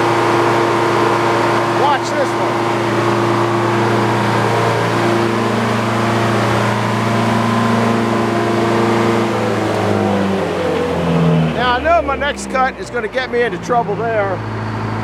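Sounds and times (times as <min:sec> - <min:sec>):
sawmill droning: 0:00.0 - 0:15.0.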